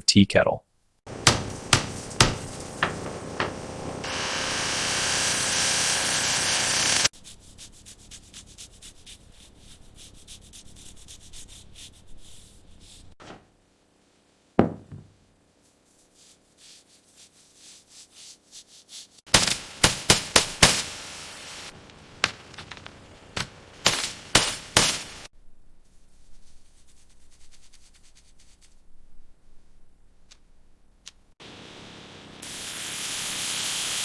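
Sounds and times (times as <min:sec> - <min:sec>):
sharp knocks: 0:01.1 - 0:04.0, 0:14.6 - 0:15.2.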